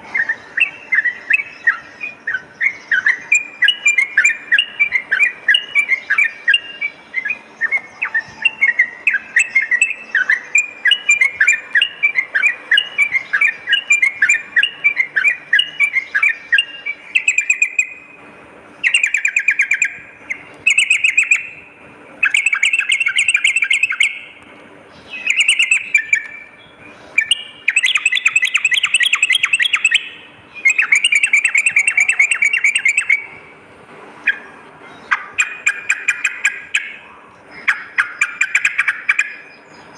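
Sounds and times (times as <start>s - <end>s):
bird singing: 0.0s - 33.6s, 34.2s - 39.9s.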